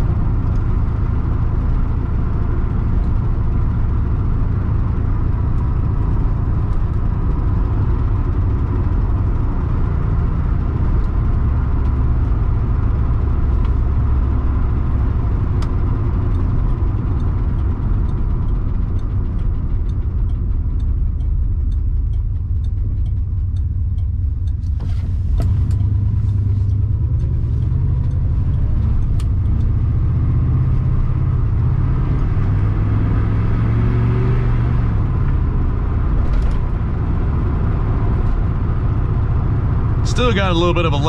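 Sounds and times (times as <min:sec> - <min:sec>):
car engine while driving: 0:00.0 - 0:41.0
faint regular ticking: 0:15.6 - 0:24.8.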